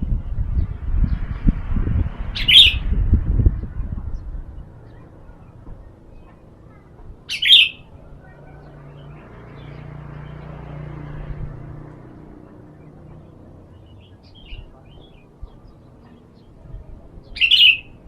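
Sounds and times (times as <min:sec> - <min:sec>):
bulbul calling: 0:02.4 - 0:02.8, 0:07.3 - 0:08.4, 0:17.2 - 0:18.0.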